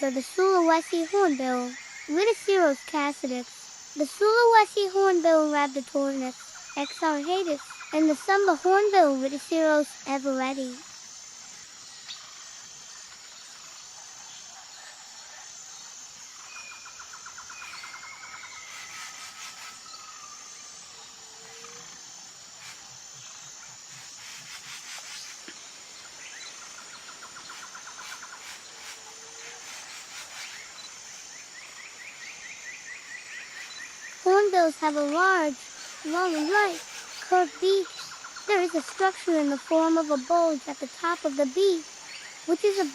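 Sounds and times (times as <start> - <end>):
insect drone: 0.0 - 42.9
birds chirping and trilling: 25.0 - 42.9.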